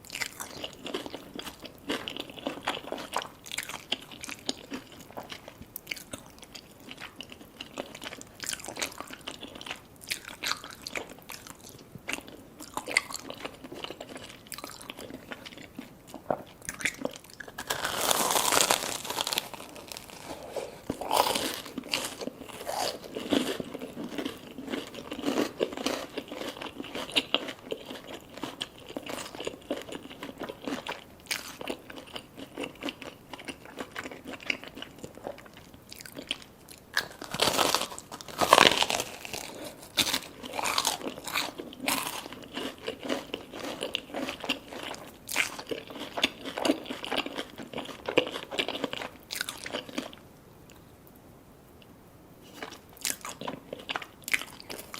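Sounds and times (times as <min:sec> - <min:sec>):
crunchy bites into fried food: 0:16.2 - 0:35.4, 0:36.0 - 0:50.1.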